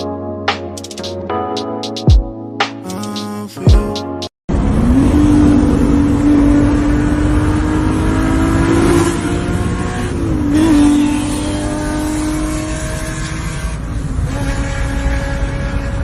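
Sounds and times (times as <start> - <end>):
car engine at high revs: 4.5 - 16.0
road and wind noise: 4.5 - 16.0.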